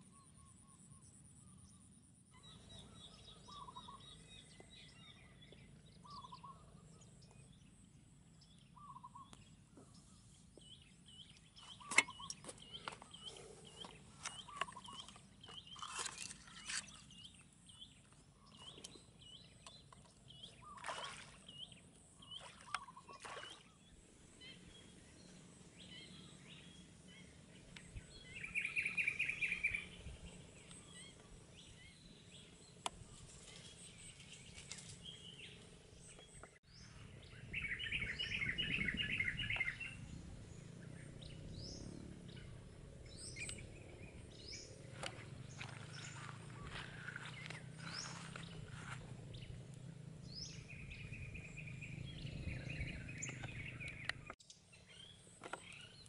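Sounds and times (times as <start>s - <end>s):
bird trill: 0.0s - 7.7s, 10.8s - 21.0s, 25.8s - 35.6s
bird chirps: 0.0s - 56.0s.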